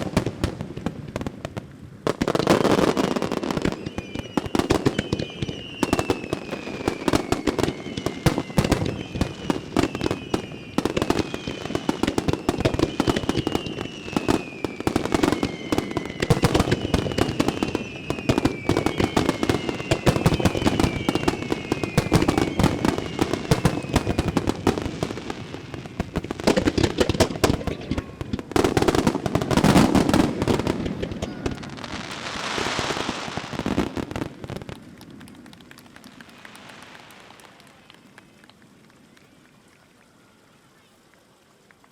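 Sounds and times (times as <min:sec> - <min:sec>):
firework crackling hiss: 0:00.0 - 0:41.9
falling firework whistles: 0:02.1 - 0:34.8
firework shell bursts: 0:26.0 - 0:31.8.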